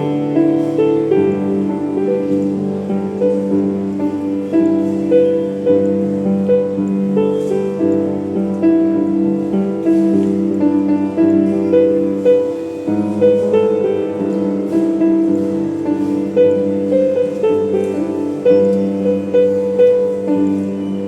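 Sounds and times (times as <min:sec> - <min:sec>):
gentle solo piano: 0:00.0 - 0:21.0.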